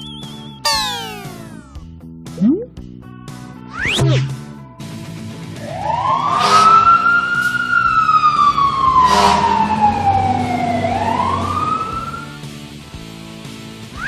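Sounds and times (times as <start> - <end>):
cartoon siren wailing: 0.7 - 1.6, 5.9 - 12.3.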